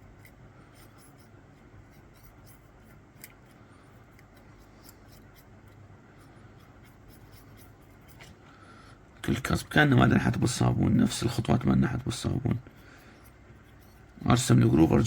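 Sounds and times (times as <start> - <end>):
dental tool scratching filling: 0.2 - 8.2, 12.0 - 15.0.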